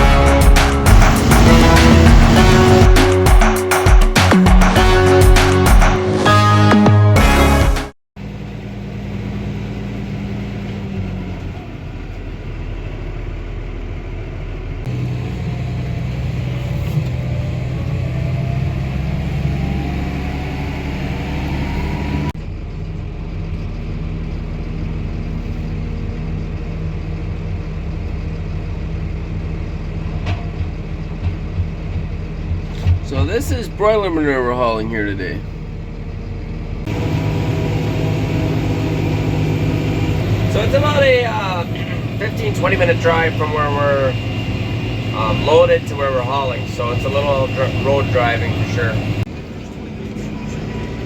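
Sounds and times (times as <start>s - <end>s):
tractor engine running: 0.0s - 6.0s, 7.2s - 51.0s
faint whine: 33.1s - 51.0s.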